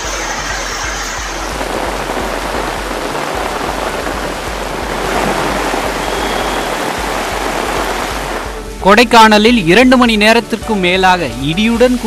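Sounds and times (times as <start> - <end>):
gusty storm wind: 0.0 - 8.9
heavy rain: 0.0 - 12.0.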